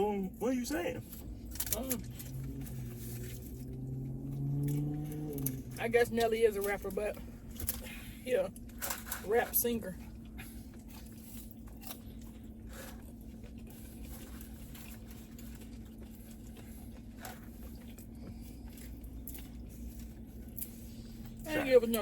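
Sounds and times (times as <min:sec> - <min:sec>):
steady low hum: 0:00.0 - 0:22.0
chewing and biting food: 0:01.1 - 0:05.8, 0:10.1 - 0:22.0.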